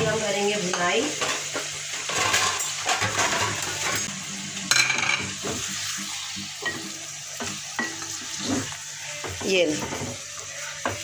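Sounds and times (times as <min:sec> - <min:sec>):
chicken sizzling in hot oil: 0:00.0 - 0:11.0
wooden spatula scraping a pan: 0:08.1 - 0:11.0.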